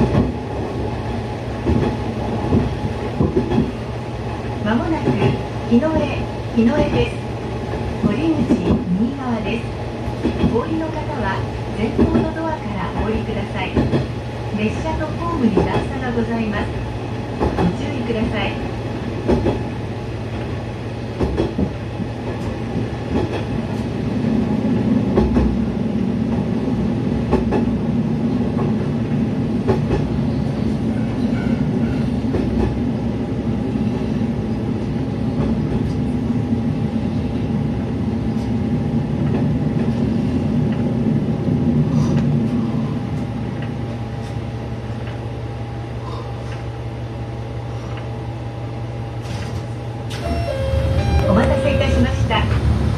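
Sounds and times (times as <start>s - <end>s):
diesel engine drone: 50.2s - 52.9s.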